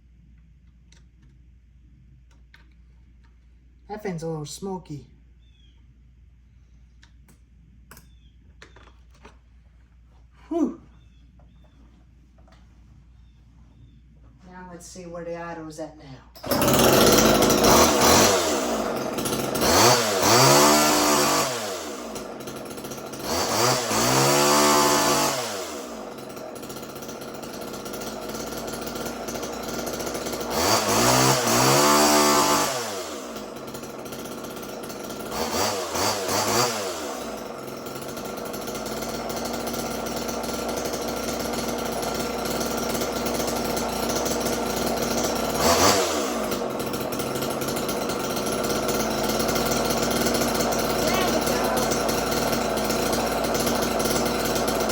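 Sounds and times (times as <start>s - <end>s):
chainsaw idling and revving: 3.9s - 5.0s, 16.3s - 54.9s.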